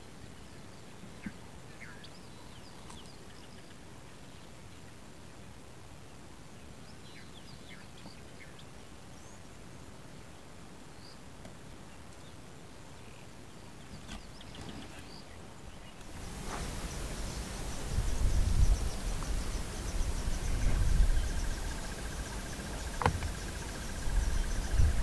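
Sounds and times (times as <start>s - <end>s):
steady low hiss: 0.0s - 25.0s
small birds chirping: 0.4s - 4.5s, 13.0s - 25.0s
broad rush of noise: 16.0s - 25.0s.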